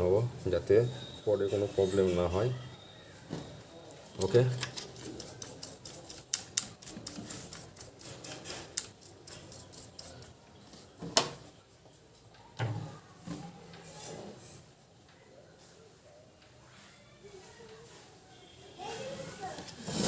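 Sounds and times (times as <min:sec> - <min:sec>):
hand tools clicking on circuit board: 0:04.2 - 0:10.3.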